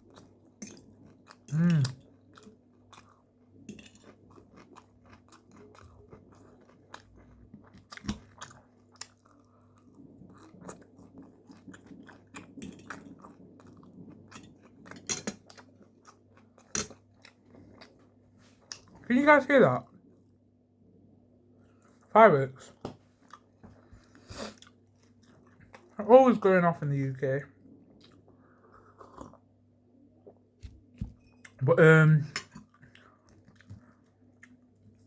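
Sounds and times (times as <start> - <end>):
close chewing with crunches: 0.0 - 19.1, 21.6 - 26.0, 32.6 - 35.0.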